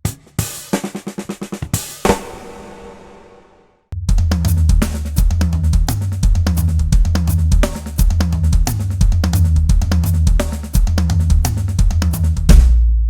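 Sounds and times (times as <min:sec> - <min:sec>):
snare and bass drum strokes: 0:00.0 - 0:13.0
low kick drum pulse: 0:04.0 - 0:13.0.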